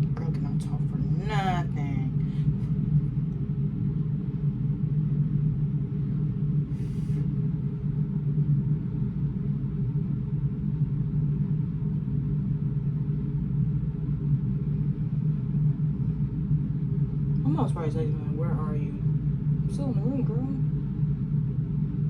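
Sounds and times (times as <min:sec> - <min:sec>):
low machinery hum and rumble: 0:00.0 - 0:22.0.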